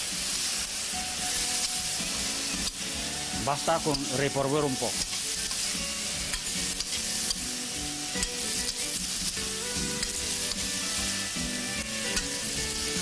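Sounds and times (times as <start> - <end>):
food sizzling in a wok: 0.0 - 13.0
metal ladle scraping pan: 12.0 - 13.0.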